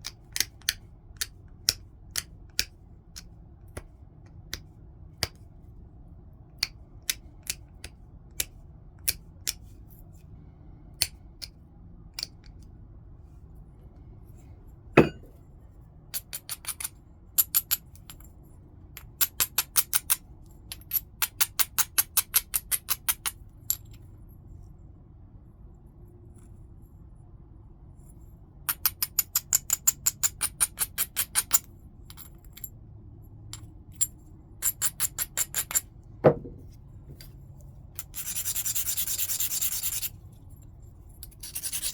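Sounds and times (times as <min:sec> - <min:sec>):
heavy knock on stone: 0:15.0 - 0:15.3, 0:36.2 - 0:36.6.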